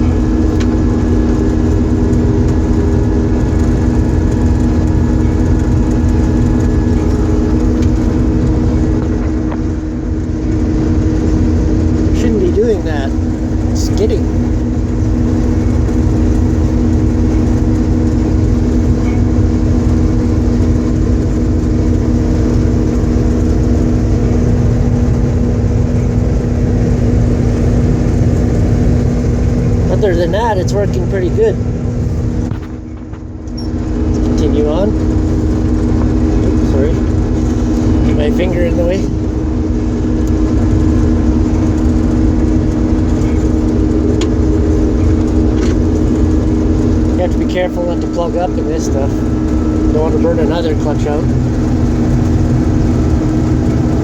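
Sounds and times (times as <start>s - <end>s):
combine engine and machinery drone: 0.0s - 54.0s
steady hum: 0.0s - 54.0s.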